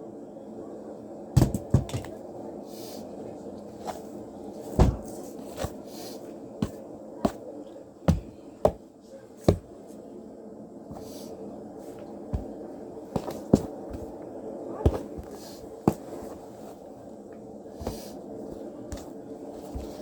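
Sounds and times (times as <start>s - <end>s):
steady background hum: 0.0s - 20.0s
objects knocking when set down: 1.4s - 2.2s.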